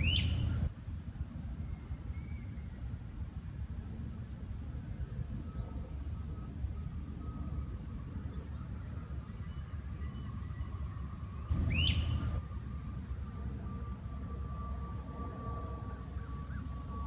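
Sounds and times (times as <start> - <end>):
bird tweet sweeping up: 0.0 - 0.7, 11.5 - 12.4
small bird chipping: 11.6 - 12.4.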